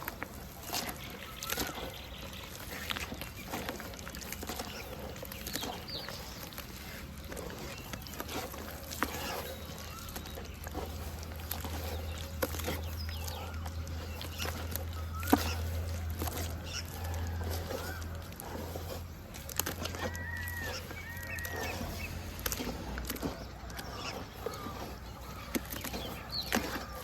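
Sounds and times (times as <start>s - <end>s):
birds calling: 0.0s - 27.0s
crisp clicks and crackles: 0.0s - 27.0s
dirt crumbling into water: 0.0s - 27.0s.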